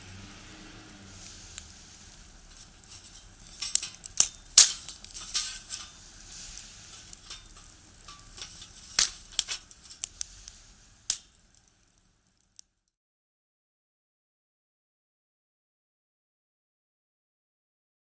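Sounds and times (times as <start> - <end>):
firewood crackling in a stove: 0.0 - 13.0
sharp wood pops: 3.6 - 5.7, 7.1 - 10.1.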